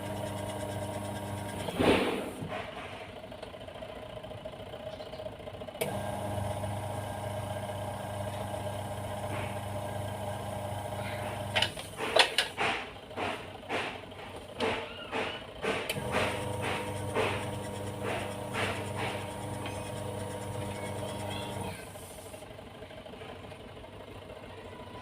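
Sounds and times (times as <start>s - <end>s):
washing machine motor humming: 0.0s - 2.8s, 5.8s - 22.5s
sharp knocks and clatters: 1.6s - 3.2s, 11.5s - 19.8s.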